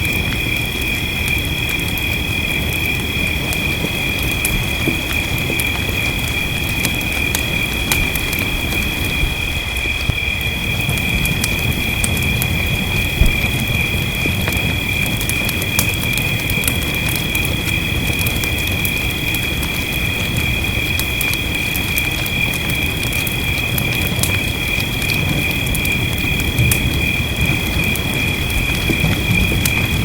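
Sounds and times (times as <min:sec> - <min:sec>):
rain hissing: 0:00.0 - 0:30.0
wood fire crackling and popping: 0:00.0 - 0:30.0.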